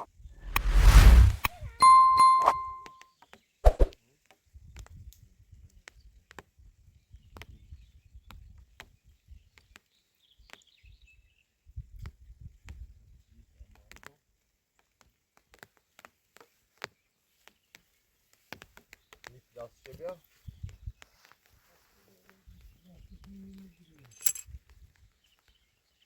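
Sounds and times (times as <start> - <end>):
low rumble: 0.4 - 1.6
bell-like chime: 1.8 - 2.9.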